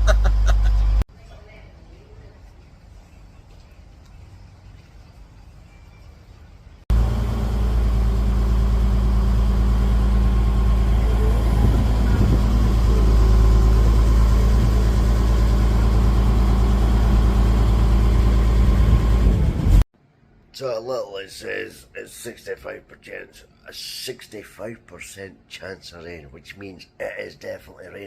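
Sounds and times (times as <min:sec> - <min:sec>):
vehicle engine idling: 0:06.7 - 0:19.8.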